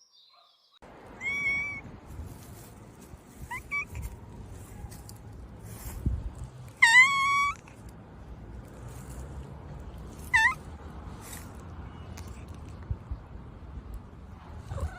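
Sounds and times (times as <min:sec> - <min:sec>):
cat meowing: 0:01.2 - 0:01.9, 0:06.8 - 0:07.6, 0:10.3 - 0:10.6.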